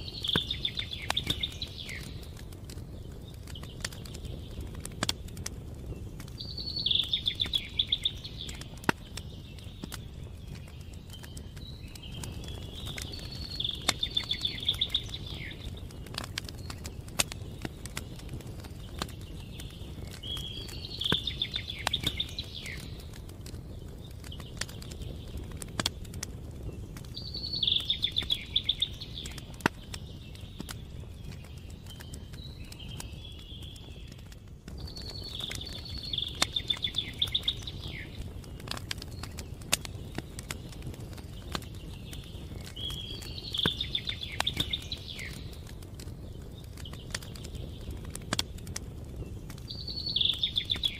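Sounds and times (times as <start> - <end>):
campfire crackling and popping: 0.0 - 50.9
songbird trilling: 12.7 - 15.6, 27.2 - 29.4.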